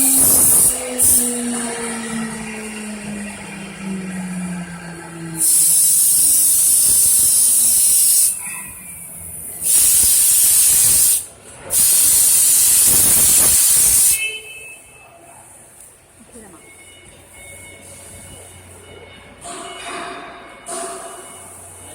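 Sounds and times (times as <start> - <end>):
loud hissing air bursts: 0.0 - 1.5, 5.4 - 14.2.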